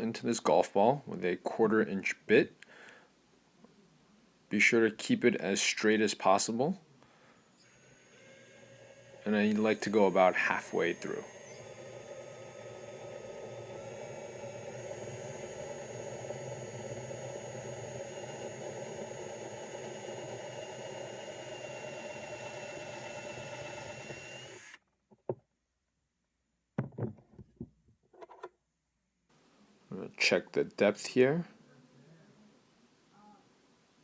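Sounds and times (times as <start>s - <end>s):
electric drill whining: 7.2s - 24.8s.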